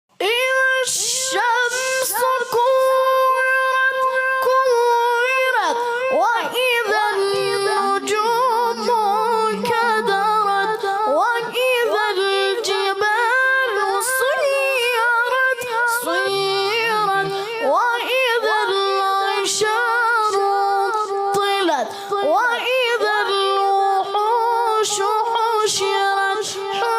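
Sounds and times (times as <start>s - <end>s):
high voice chanting melodically: 0.1s - 26.9s.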